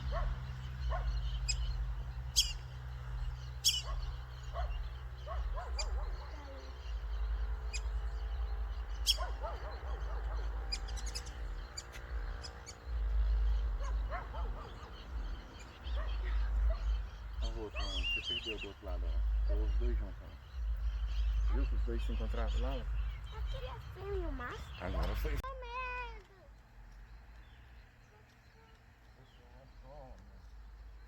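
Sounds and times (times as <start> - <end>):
steady low rumble: 0.0 - 18.0, 18.6 - 26.1
lower bird call notes: 0.0 - 25.0
birds chirping: 0.0 - 31.0.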